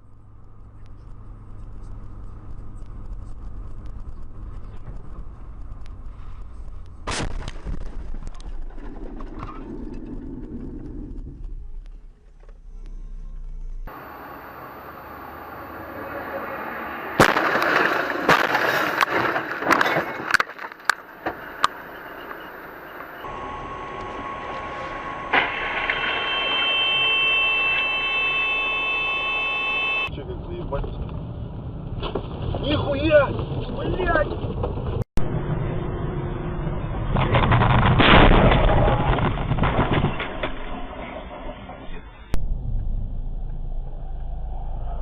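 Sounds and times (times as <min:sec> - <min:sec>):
car road and engine rumble: 0:00.0 - 0:25.8, 0:28.3 - 0:45.0
loud bang: 0:15.8 - 0:20.5, 0:23.0 - 0:30.1, 0:35.2 - 0:45.0
car jolts: 0:17.2 - 0:21.7, 0:37.1 - 0:42.1
faint high tone: 0:22.1 - 0:30.2.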